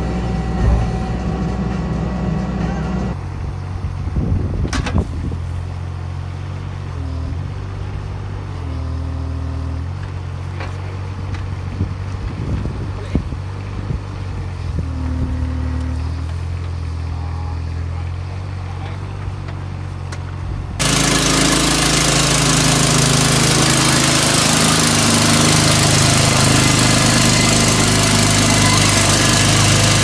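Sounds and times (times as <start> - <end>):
hydraulic whine: 0.0 - 3.2, 14.4 - 16.5, 20.8 - 30.0
digger engine running: 0.0 - 3.8, 6.0 - 30.0.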